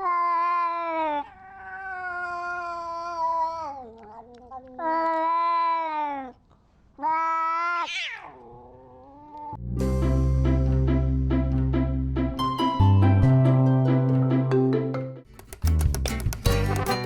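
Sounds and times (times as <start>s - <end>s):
cat yowling: 0.0s - 6.4s, 7.0s - 9.6s.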